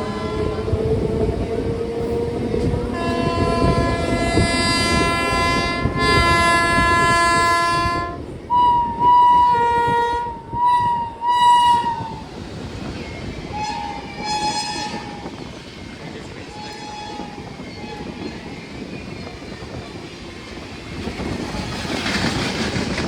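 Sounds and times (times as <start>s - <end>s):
train horn long blast: 0.0s - 1.4s, 2.0s - 12.2s, 13.5s - 15.2s
passing train rumble: 0.0s - 23.0s.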